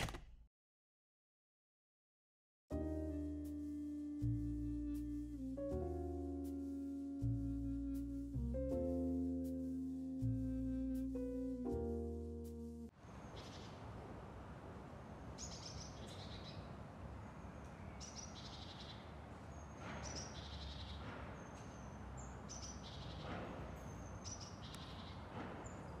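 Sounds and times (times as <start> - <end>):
faint outdoor background noise: 12.9 - 26.0
birds chirping: 15.3 - 26.0.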